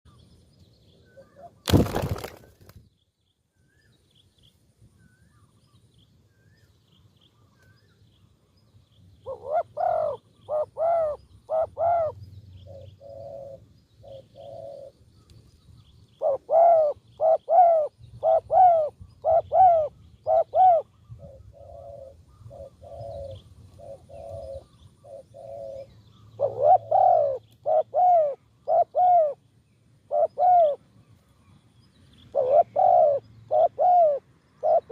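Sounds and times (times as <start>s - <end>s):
doves cooing: 9.2s - 15.0s, 16.2s - 29.4s, 30.1s - 30.8s, 32.3s - 34.9s.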